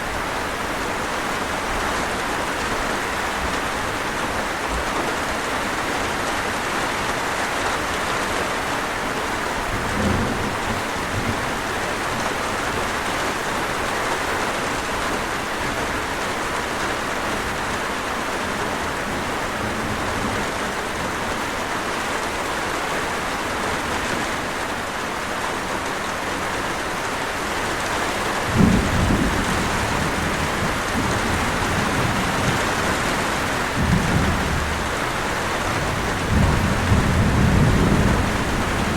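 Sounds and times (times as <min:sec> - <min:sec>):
heavy rain hissing: 0:00.0 - 0:38.9
thunder rumbling: 0:28.4 - 0:38.9.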